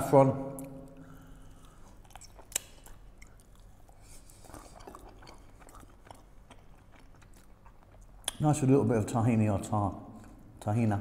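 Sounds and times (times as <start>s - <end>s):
soft chewing with mouth clicks: 0.6s - 8.4s.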